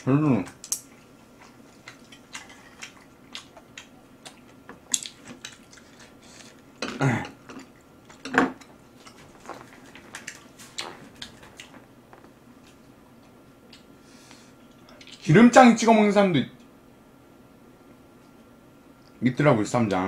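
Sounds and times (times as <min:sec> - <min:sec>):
wet chewing mouth clicks: 0:09.0 - 0:11.8.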